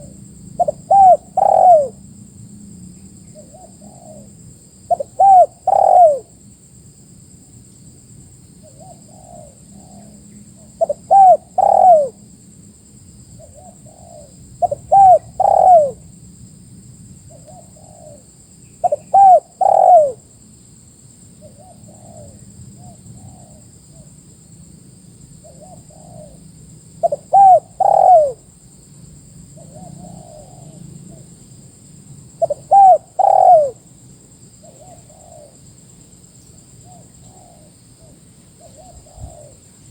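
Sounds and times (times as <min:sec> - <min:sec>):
dove cooing: 0:00.0 - 0:02.0, 0:03.4 - 0:04.3, 0:04.9 - 0:06.4, 0:08.6 - 0:12.2, 0:13.4 - 0:16.0, 0:18.8 - 0:20.2, 0:25.4 - 0:26.4, 0:27.0 - 0:28.5, 0:29.6 - 0:31.3, 0:32.4 - 0:33.8, 0:34.6 - 0:35.6, 0:36.8 - 0:39.6
faint dove cooing: 0:00.0 - 0:02.0, 0:03.3 - 0:06.4, 0:08.6 - 0:12.2, 0:13.4 - 0:16.0, 0:17.3 - 0:18.2, 0:18.8 - 0:20.2, 0:21.4 - 0:24.1, 0:25.4 - 0:26.4, 0:27.0 - 0:28.5, 0:29.6 - 0:31.3, 0:32.4 - 0:33.8, 0:34.6 - 0:35.6, 0:36.8 - 0:39.9.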